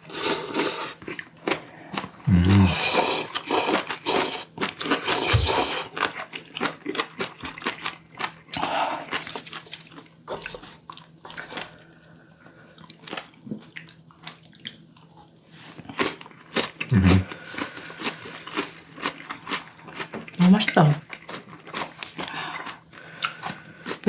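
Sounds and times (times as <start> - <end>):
slurping: 0.0 - 1.2, 2.1 - 6.1, 16.9 - 17.3
chewing: 0.2 - 20.4, 21.0 - 24.0.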